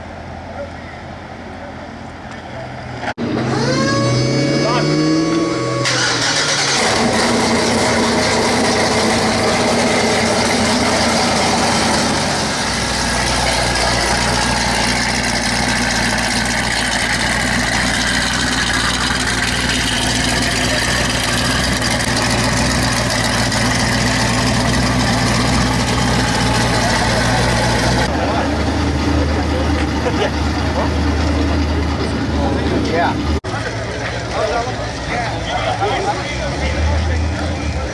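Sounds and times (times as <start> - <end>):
busy background noise: 0.0 - 9.9, 25.4 - 37.9
car engines idling: 0.0 - 37.9.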